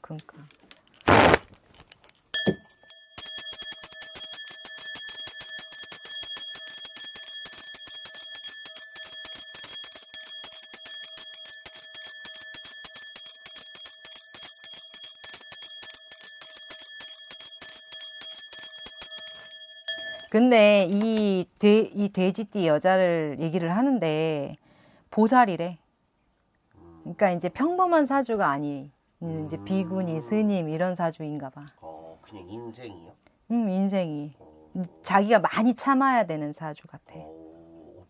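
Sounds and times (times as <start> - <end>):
brass bells jingling: 2.4 - 20.6.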